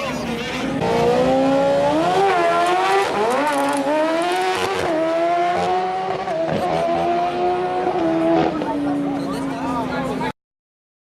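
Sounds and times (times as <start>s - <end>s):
motorcycle engine revving: 0.3s - 9.1s.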